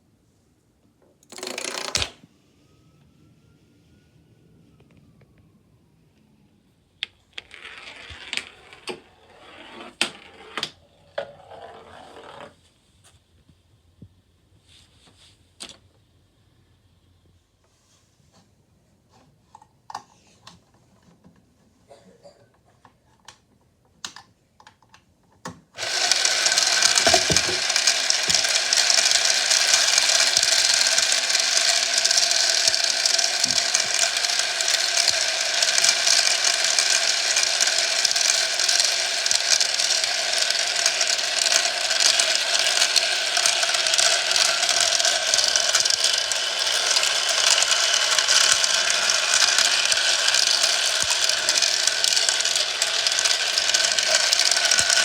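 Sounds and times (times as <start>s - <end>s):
gears clattering and marbles rattling: 1.3s - 2.2s, 25.8s - 55.0s
separate clicks: 25.8s - 55.0s.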